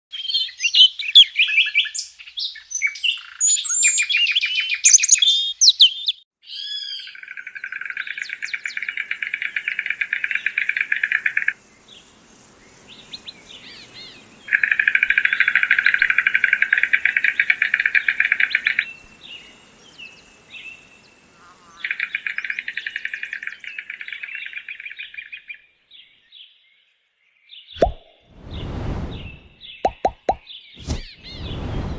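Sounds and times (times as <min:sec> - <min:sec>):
chirping bird calls: 0:04.3 - 0:25.6
faint steady high hiss: 0:07.2 - 0:25.4.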